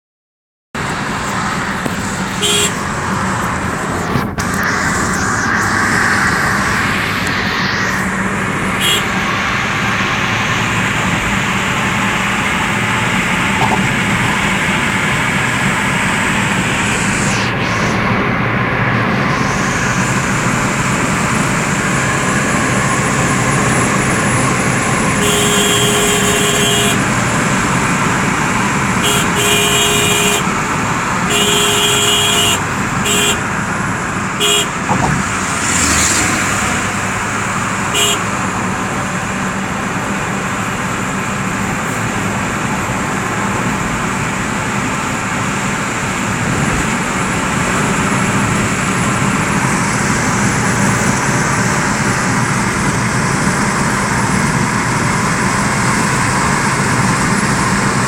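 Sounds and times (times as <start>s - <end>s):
road traffic noise: 0.7s - 58.0s
vehicle horn honking: 2.3s - 2.8s, 8.8s - 9.2s, 25.2s - 27.2s, 29.0s - 30.6s, 31.3s - 33.6s, 34.4s - 35.2s, 37.9s - 38.4s.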